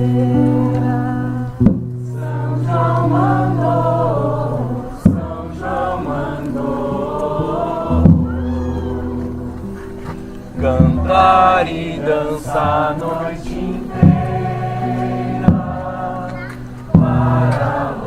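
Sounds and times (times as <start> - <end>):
group of voices singing: 0.0 - 9.8, 10.5 - 18.0
steady low tone: 0.0 - 18.0
loud thump: 10.6 - 11.6.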